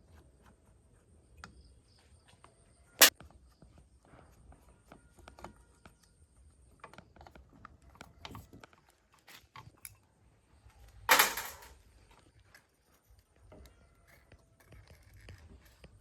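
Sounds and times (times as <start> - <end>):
clicks and taps on metal parts: 11.1 - 11.7.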